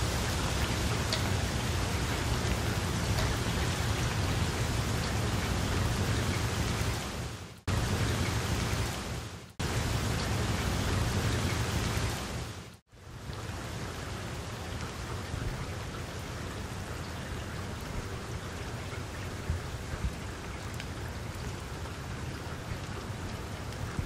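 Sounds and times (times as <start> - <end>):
rain falling on water: 0.0 - 24.0.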